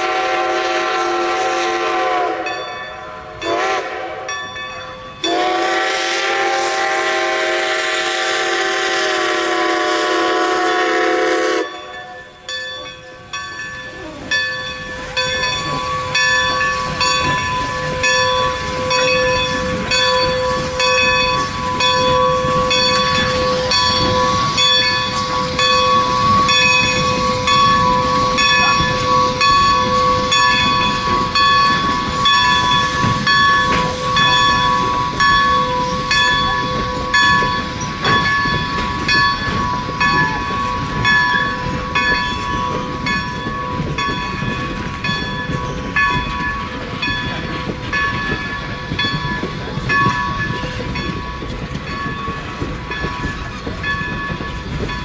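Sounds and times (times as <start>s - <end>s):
train horn: 0.0s - 4.4s, 5.2s - 12.2s
train passing with rumble: 0.0s - 55.0s
train wheels clicking: 0.0s - 55.0s.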